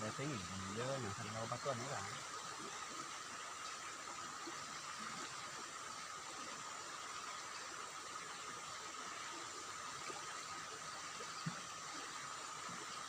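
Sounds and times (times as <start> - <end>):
thin steady high tone: 0.0 - 2.3
stream water rushing: 0.0 - 13.0.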